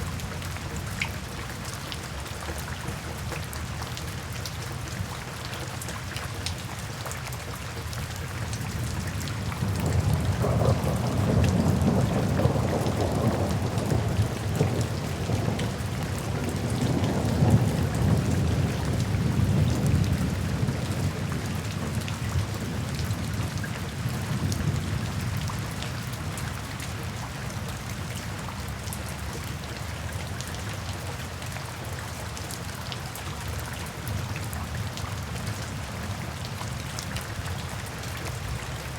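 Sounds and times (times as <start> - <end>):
steady rain falling: 0.0 - 38.9
thunder rolling: 9.8 - 15.5.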